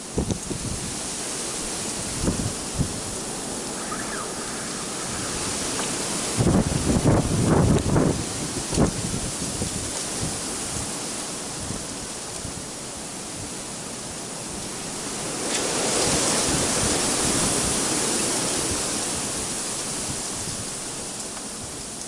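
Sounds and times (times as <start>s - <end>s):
blizzard wind rushing: 0.0s - 11.6s.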